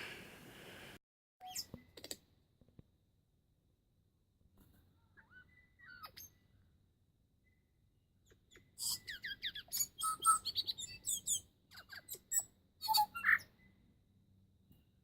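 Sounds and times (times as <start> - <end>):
bird song chirps and whistles: 1.4 - 1.7, 5.2 - 6.4, 8.3 - 13.8.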